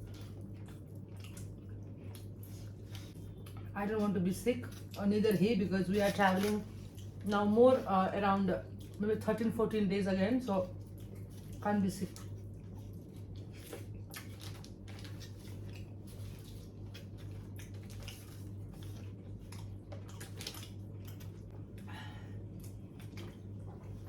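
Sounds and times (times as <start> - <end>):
person chewing: 0.0 - 3.7, 10.8 - 24.0
steady low hum: 0.0 - 24.0.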